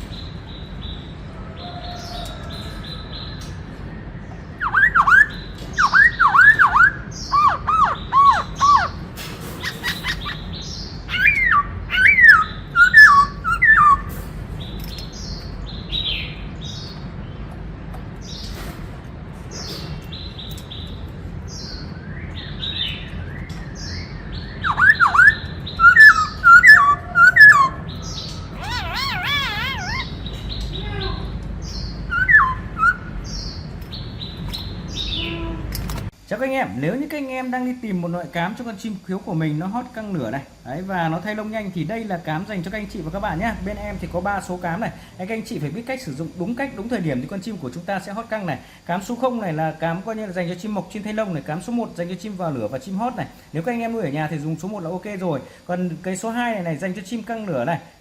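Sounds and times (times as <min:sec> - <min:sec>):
wavering bird trill: 0:04.4 - 0:14.2, 0:21.5 - 0:35.6
bird singing swooping whistles: 0:04.6 - 0:09.0, 0:11.1 - 0:14.1, 0:22.0 - 0:30.1, 0:32.1 - 0:33.4.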